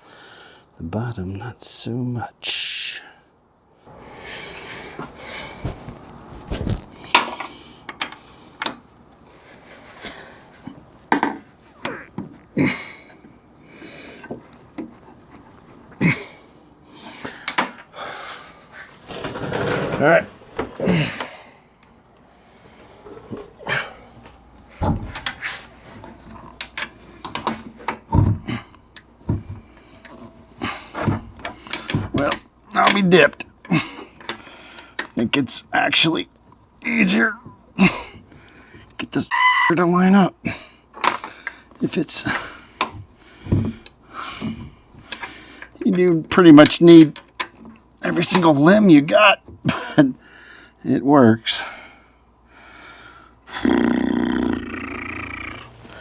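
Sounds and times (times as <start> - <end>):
heavy thumps: 5.4 - 7.0.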